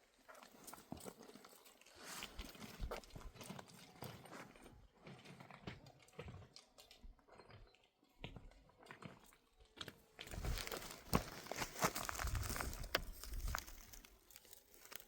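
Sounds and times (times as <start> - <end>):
dry plants rustling and crackling: 10.0 - 15.0.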